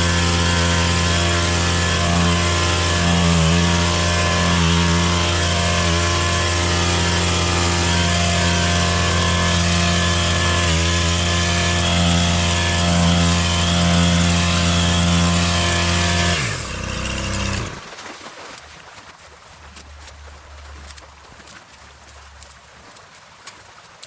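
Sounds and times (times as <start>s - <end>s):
small engine at high revs: 0.0s - 18.0s.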